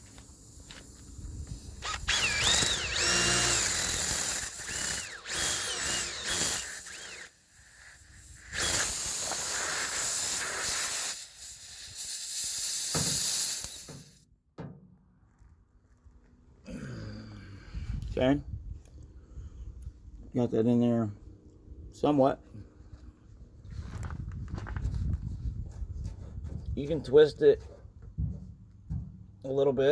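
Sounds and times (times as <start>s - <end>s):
power drill running: 0.0s - 14.2s.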